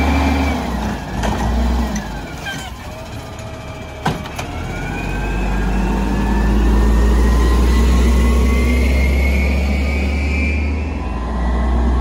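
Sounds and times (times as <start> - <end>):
truck engine revving: 0.0 - 12.0
rising whine: 4.7 - 12.0.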